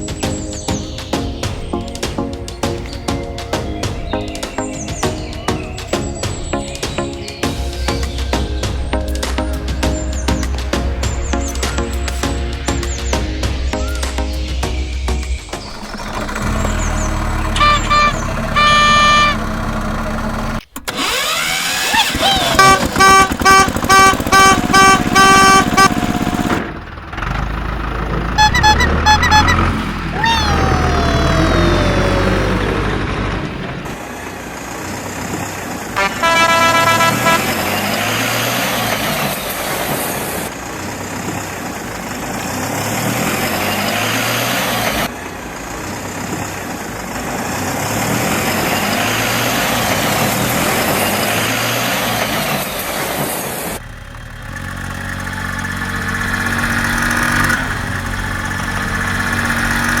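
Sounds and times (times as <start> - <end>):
vehicle engine: 0.0 - 60.0
horn honking: 15.7 - 26.7, 28.2 - 32.8, 36.0 - 40.8.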